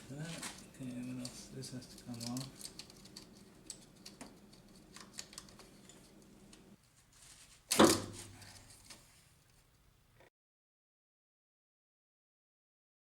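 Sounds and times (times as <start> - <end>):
hand tools clicking and tapping: 0.4 - 6.6.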